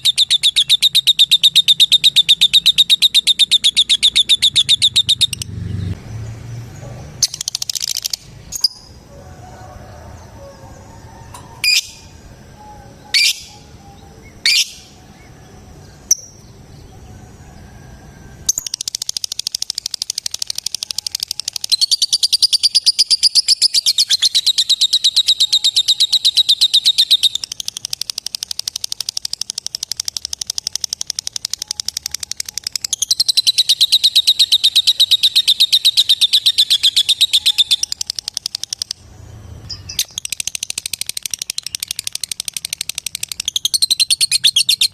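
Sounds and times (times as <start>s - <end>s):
bird chirping: 0.0s - 9.1s, 10.1s - 44.9s
rapid high-pitched chattering trill: 27.1s - 33.4s.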